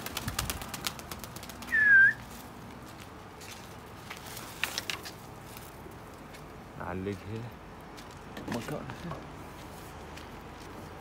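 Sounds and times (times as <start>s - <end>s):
short sharp whistle: 1.7s - 2.2s.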